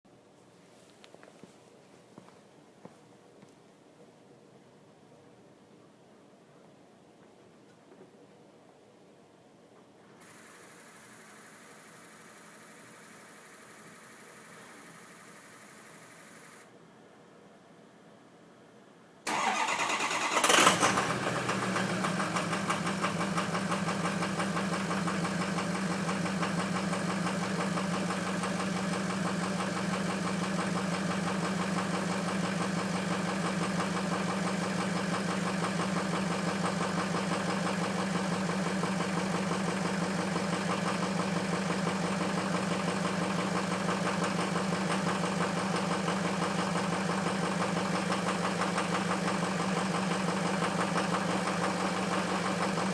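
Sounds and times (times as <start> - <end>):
engine idling: 10.3 - 16.6, 19.3 - 52.9
engine cranking and starting: 19.3 - 24.2.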